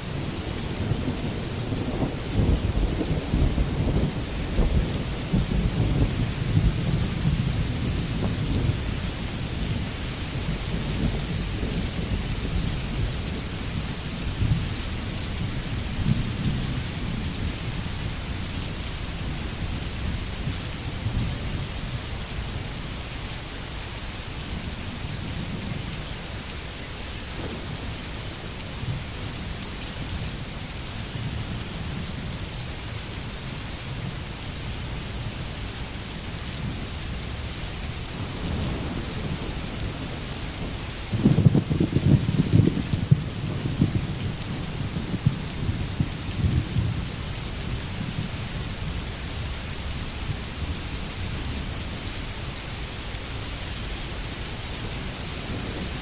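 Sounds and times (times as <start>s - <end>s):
rain hissing: 0.0s - 56.0s
rolling thunder: 0.3s - 18.1s, 38.2s - 47.2s.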